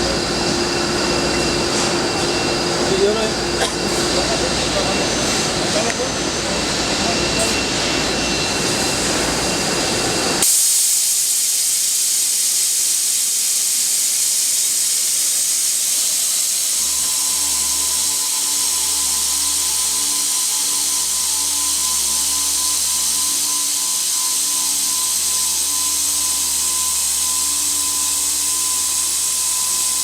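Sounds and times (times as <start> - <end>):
circular saw hissing: 0.0 - 30.0.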